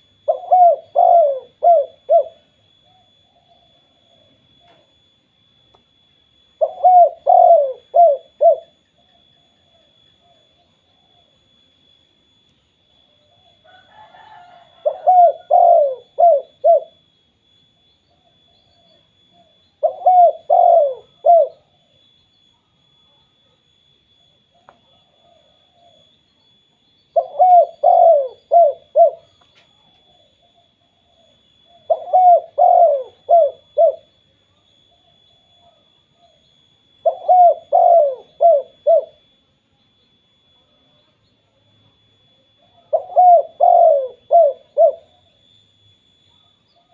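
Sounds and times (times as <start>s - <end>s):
dove cooing: 0.0s - 4.9s, 6.6s - 11.4s, 13.1s - 17.0s, 18.1s - 21.9s, 24.4s - 26.2s, 27.1s - 39.3s, 42.6s - 45.4s.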